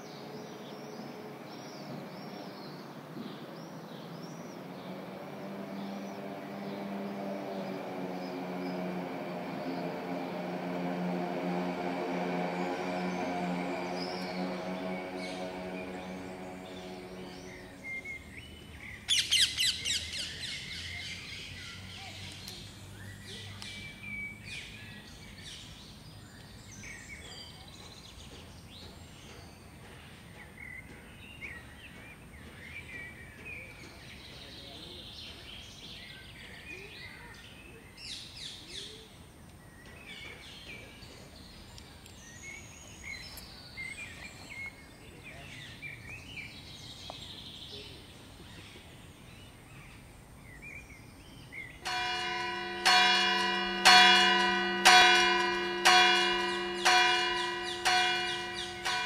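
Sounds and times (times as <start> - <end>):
songbirds chirping and singing: 0.0 - 59.0
loud rapid bird trill: 13.8 - 22.3, 51.7 - 59.0.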